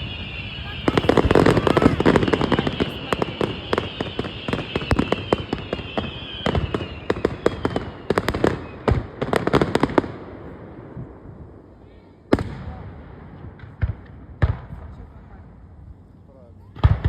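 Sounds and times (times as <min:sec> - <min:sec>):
falling whistle: 0:00.0 - 0:08.8
fireworks bangs and crackles: 0:00.0 - 0:15.9, 0:16.6 - 0:17.0.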